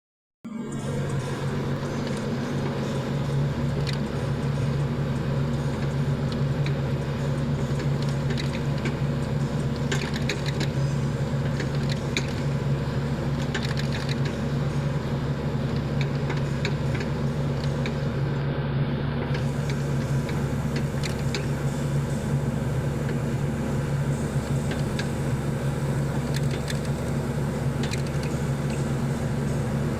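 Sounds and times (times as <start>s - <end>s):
excavator diesel engine running: 0.5s - 29.9s
machine clicks and knocks: 7.8s - 9.0s, 9.8s - 10.8s, 11.4s - 12.5s, 13.4s - 14.4s, 19.2s - 21.5s, 26.1s - 27.1s, 27.8s - 28.8s.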